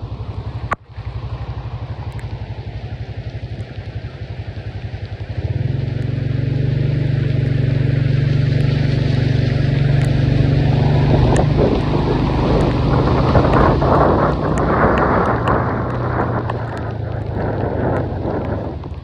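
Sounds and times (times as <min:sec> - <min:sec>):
engine-like hum: 0:00.0 - 0:19.0
rushing noise: 0:08.0 - 0:19.0.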